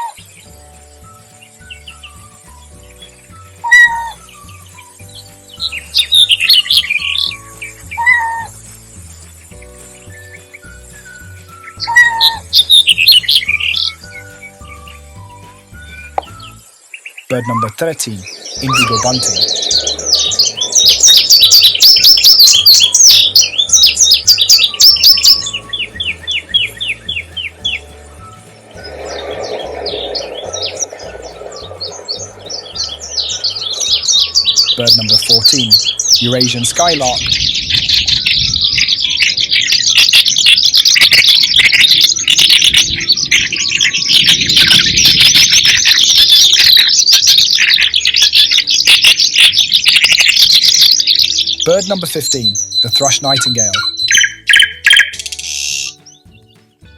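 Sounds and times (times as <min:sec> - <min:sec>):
songbird singing high sharp notes: 0:00.0 - 0:56.8.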